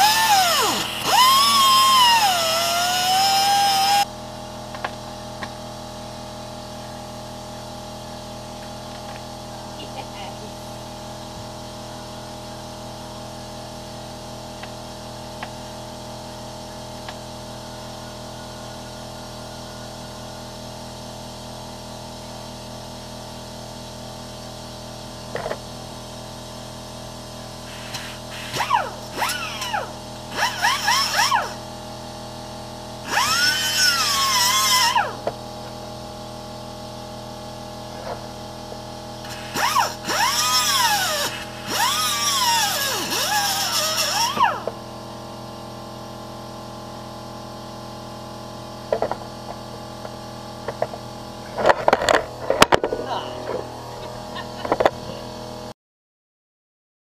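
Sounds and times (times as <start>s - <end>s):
cutting wheel whining on steel: 0.0s - 4.1s, 27.5s - 45.5s.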